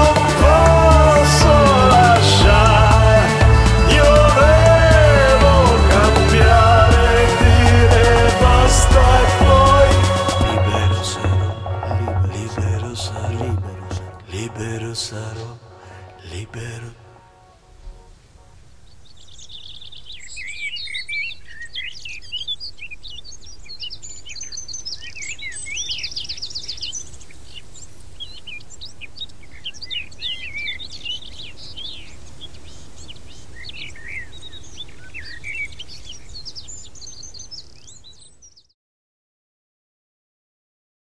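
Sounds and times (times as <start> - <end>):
songbirds singing and chirping: 0.0 - 38.8.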